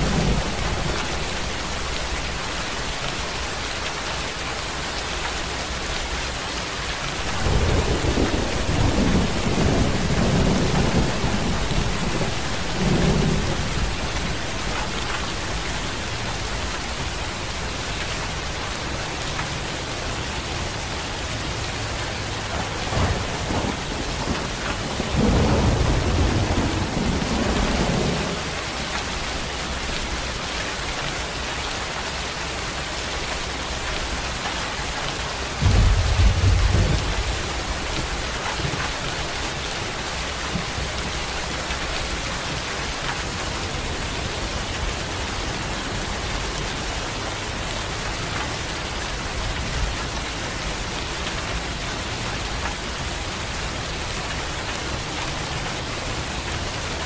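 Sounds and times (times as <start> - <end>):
rolling thunder: 0.0 - 2.6, 7.1 - 18.7, 21.8 - 29.3, 35.6 - 39.6
heavy rain falling: 0.0 - 57.0.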